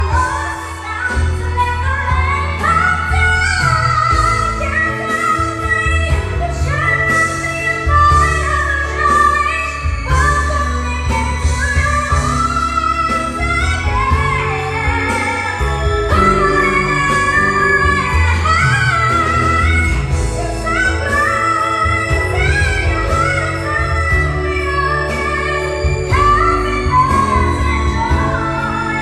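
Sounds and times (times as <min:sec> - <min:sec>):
backing track with heavy bass: 0:00.0 - 0:29.0
person singing pop ballad: 0:00.0 - 0:29.0.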